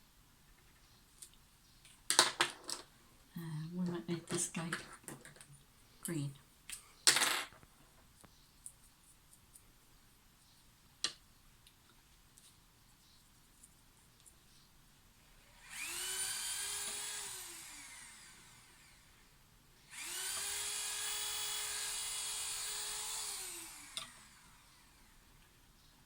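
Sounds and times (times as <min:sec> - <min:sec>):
small electric motor whirring: 0:15.5 - 0:19.3, 0:19.9 - 0:25.3.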